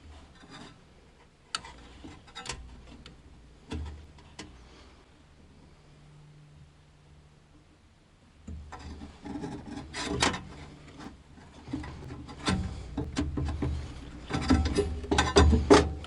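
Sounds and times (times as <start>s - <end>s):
faint low hum: 0.0s - 16.0s
clicks and knocks of hard parts: 1.5s - 4.6s, 8.5s - 16.0s
rubbing and scraping: 8.6s - 16.0s.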